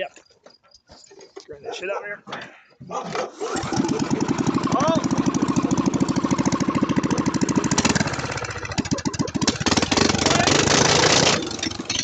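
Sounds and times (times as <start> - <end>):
garden tractor engine running: 3.3 - 12.0.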